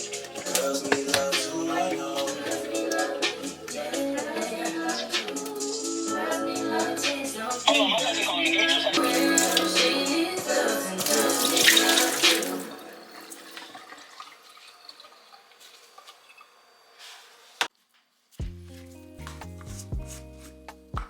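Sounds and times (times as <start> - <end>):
background music: 0.0 - 14.0, 18.4 - 21.0
tap water running into sink: 9.0 - 10.0, 11.0 - 16.4.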